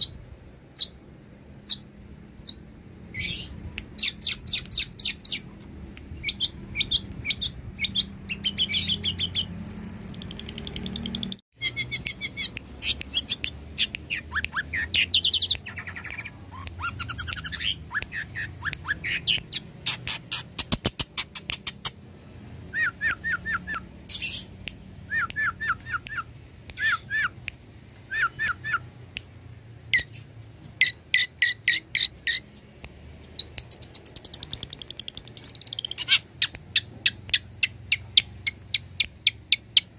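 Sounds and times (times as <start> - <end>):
shrike singing chirps and trills: 1.6 - 22.0, 29.9 - 39.9.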